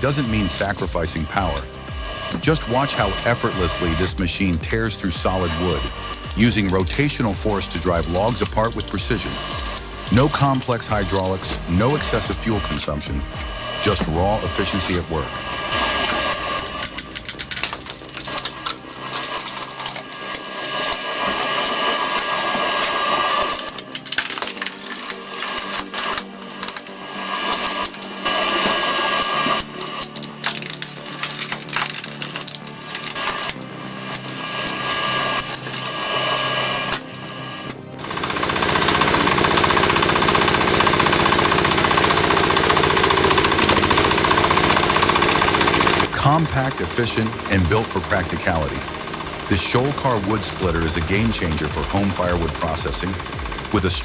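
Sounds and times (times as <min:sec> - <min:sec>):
machine engine knocking steadily: 0:00.0 - 0:18.6, 0:38.0 - 0:54.0
log splitter mechanical whine: 0:00.0 - 0:54.0
wood splitting cracks: 0:15.3 - 0:35.8.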